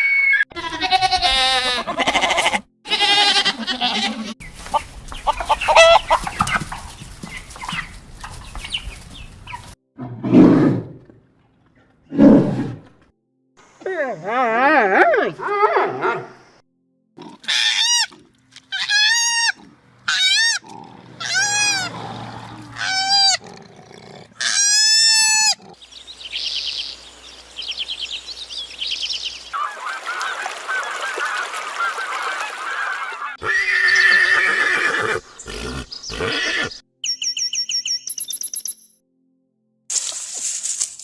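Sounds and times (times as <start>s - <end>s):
rising and falling animal calls: 1.1s - 11.0s, 18.7s - 26.8s, 29.5s - 36.8s
chorus of overlapping animal calls: 29.5s - 36.8s.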